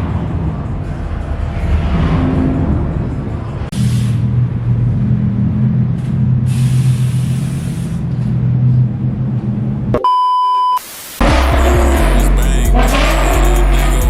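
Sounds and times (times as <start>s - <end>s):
car engine droning: 0.0s - 10.0s, 11.2s - 14.0s
high electronic beep: 10.0s - 13.8s
bursts of hiss: 10.8s - 12.3s.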